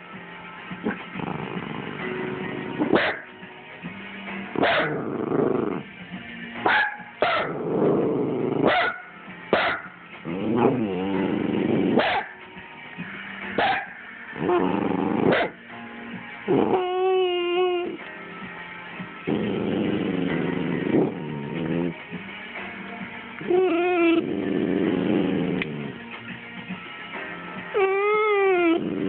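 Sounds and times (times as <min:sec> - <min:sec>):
dog growling and whining: 0:00.8 - 0:03.2, 0:04.5 - 0:05.9, 0:07.4 - 0:08.8, 0:10.2 - 0:12.2, 0:14.4 - 0:15.6, 0:16.4 - 0:18.1, 0:19.2 - 0:22.2, 0:23.4 - 0:26.0, 0:27.7 - 0:29.0
dog yipping: 0:02.9 - 0:03.2, 0:04.6 - 0:05.0, 0:06.6 - 0:07.6, 0:08.6 - 0:09.9, 0:12.0 - 0:12.3, 0:13.6 - 0:14.0, 0:15.3 - 0:15.6, 0:23.5 - 0:24.2, 0:27.8 - 0:28.8.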